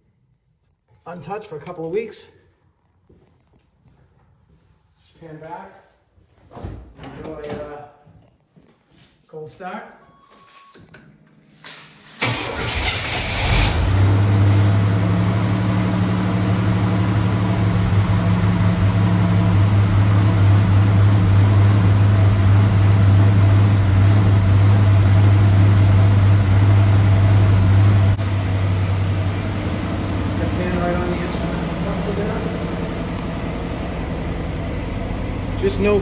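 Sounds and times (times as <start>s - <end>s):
car engine starting and idling: 12.2s - 36.0s.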